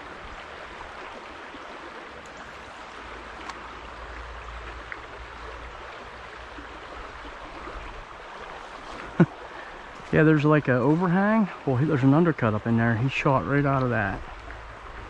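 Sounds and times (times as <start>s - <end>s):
creek flowing: 0.0s - 15.0s
faint clicks: 3.4s - 3.7s.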